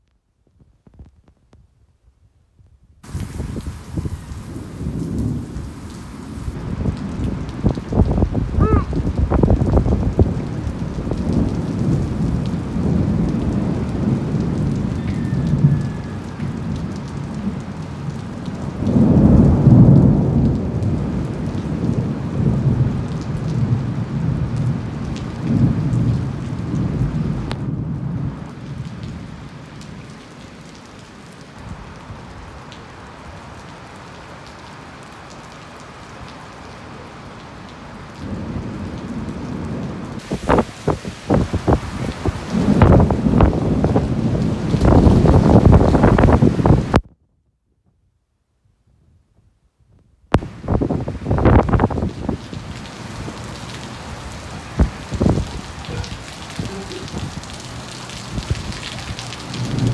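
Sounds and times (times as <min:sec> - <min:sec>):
thunder rumbling: 0:03.0 - 0:17.7, 0:18.7 - 0:24.8, 0:39.5 - 0:47.0, 0:50.4 - 0:59.9
heavy rain: 0:03.0 - 0:47.0, 0:50.4 - 0:59.9.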